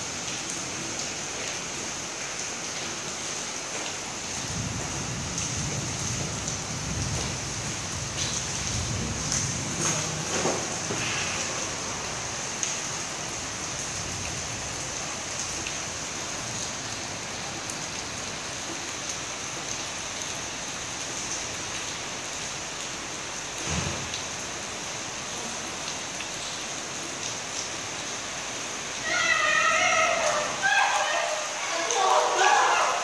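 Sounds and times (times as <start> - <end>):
steady rain: 0.0 - 33.0
low thunder rumble: 4.4 - 12.2.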